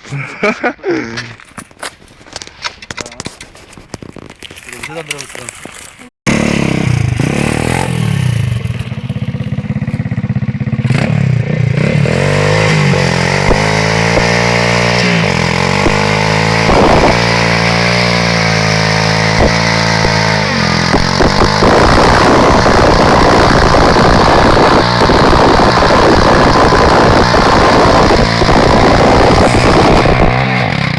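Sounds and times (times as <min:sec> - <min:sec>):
motorbike engine revving hard: 0:06.3 - 0:30.9.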